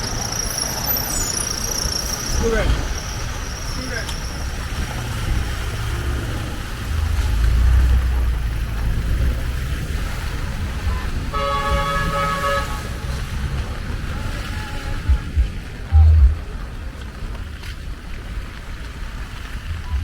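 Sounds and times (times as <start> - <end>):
road traffic rumble: 0.0 - 20.0
vehicle horn: 11.2 - 13.5.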